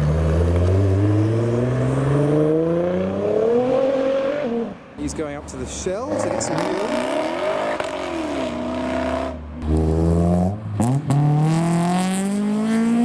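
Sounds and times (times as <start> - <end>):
car engine accelerating: 6.1 - 13.0.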